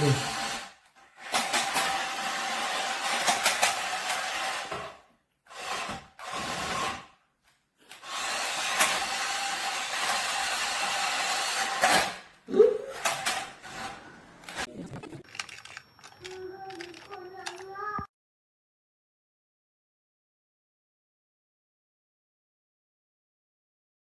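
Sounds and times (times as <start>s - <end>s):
toy truck electric motor whirring: 0.0s - 7.2s, 7.9s - 12.2s, 13.0s - 18.0s.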